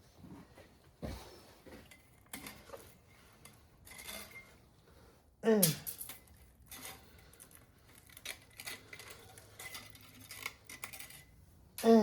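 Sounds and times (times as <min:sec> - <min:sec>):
metal tools clicking and clinking: 0:01.8 - 0:04.6, 0:05.6 - 0:12.0.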